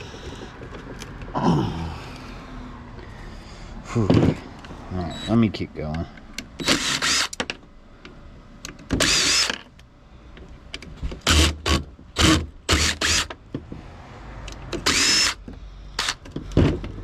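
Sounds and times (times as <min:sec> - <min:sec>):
power drill whining: 0:06.6 - 0:07.4, 0:09.0 - 0:09.6, 0:11.2 - 0:13.3, 0:14.8 - 0:15.4, 0:16.0 - 0:16.2.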